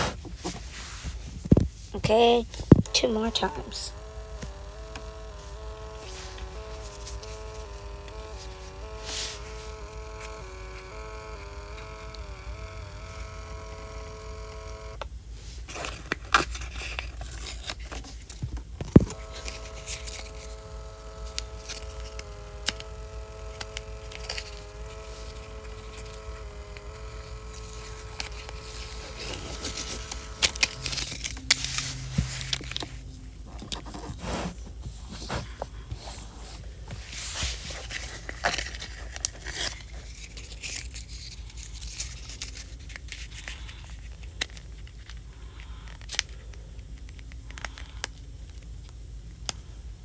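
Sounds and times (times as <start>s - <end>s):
printer motor whining: 2.0s - 15.0s, 18.8s - 34.5s
paper crackling: 2.3s - 15.0s, 16.9s - 34.5s
sharp clicks: 2.5s - 15.1s, 18.8s - 33.0s.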